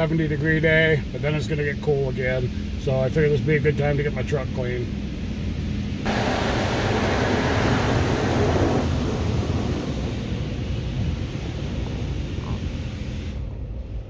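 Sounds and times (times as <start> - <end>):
low steady rumble: 0.0 - 14.0
water spray hissing on truck: 6.1 - 13.4.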